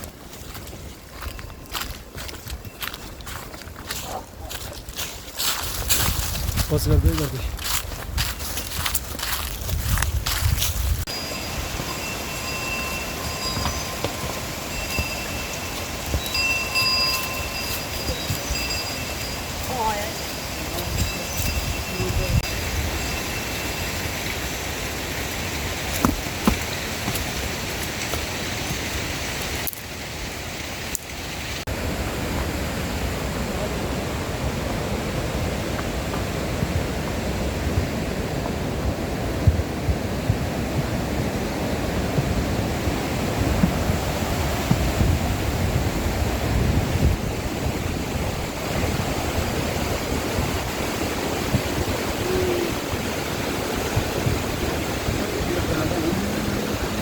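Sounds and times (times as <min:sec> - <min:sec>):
mountain stream rushing: 0:11.0 - 0:57.0.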